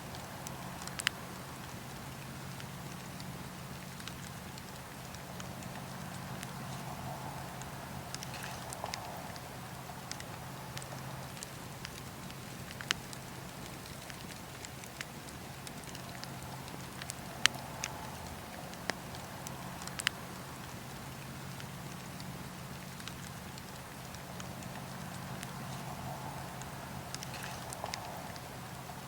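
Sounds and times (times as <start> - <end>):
wood crackling and popping: 0.0 - 29.0.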